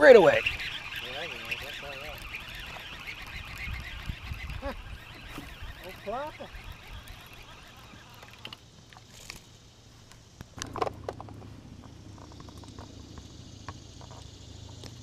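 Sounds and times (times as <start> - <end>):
gear knocking and clicking: 0.0 - 8.6.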